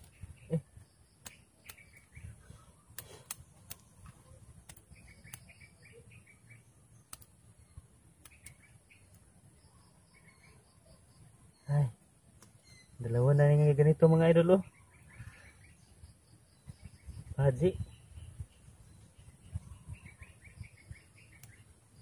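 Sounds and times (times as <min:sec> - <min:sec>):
bird chirping: 0:00.0 - 0:22.0
clicks of fishing line and hook: 0:02.9 - 0:05.6.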